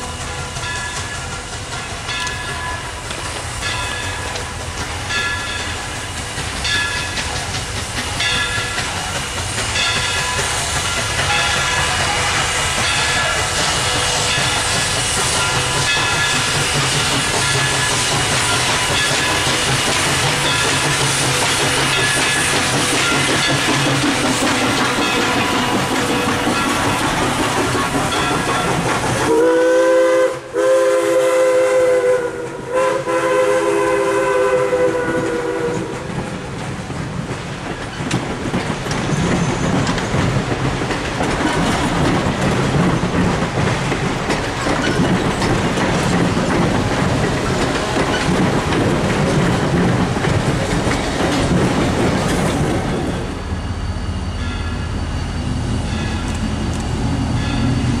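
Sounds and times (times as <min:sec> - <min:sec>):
train wheels clattering over joints: 0:00.0 - 0:30.2, 0:34.9 - 0:53.4
steam locomotive chime whistle: 0:00.0 - 0:36.1, 0:53.0 - 0:58.0.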